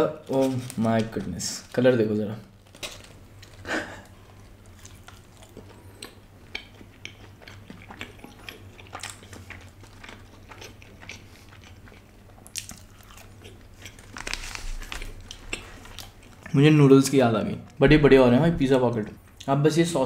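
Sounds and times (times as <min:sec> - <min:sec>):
low steady hum: 0:00.0 - 0:20.0
close chewing with wet clicks: 0:04.6 - 0:14.3, 0:14.9 - 0:16.6.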